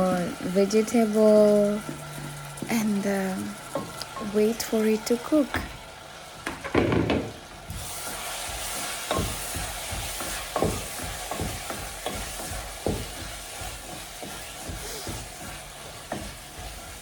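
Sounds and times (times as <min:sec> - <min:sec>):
vegetables sizzling in a pan: 0:00.0 - 0:17.0
spoon knocking against pan: 0:09.1 - 0:13.4.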